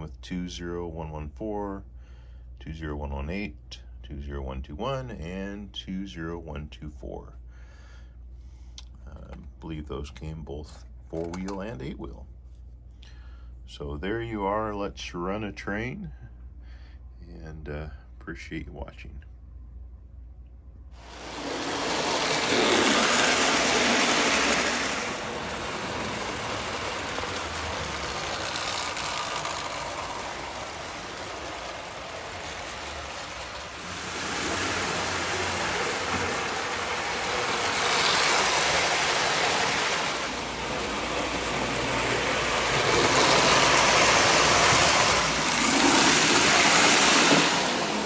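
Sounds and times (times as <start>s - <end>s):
toy train whirring rattle: 21.0s - 48.0s.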